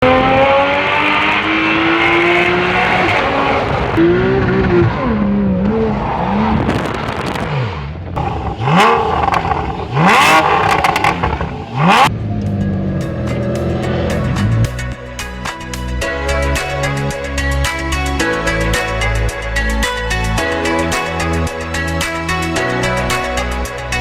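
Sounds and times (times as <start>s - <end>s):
sports car engine revving: 0.0s - 14.9s.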